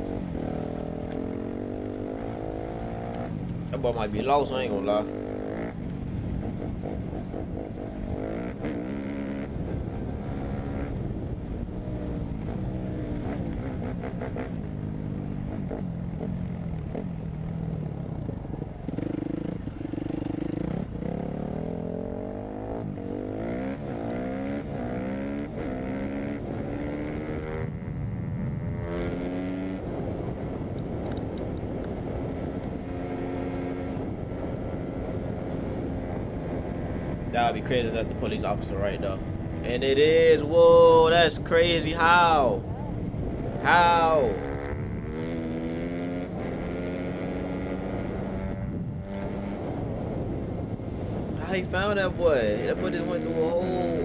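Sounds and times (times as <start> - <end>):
dirt bike engine revving: 6.6 - 11.0, 36.4 - 49.7.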